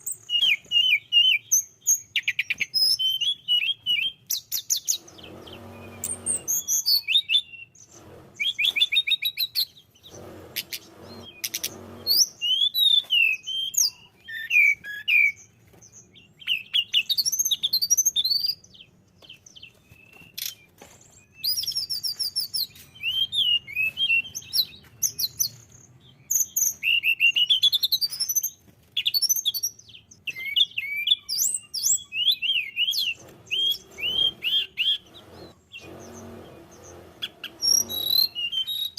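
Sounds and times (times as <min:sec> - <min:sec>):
songbird singing trills: 0:00.0 - 0:38.9.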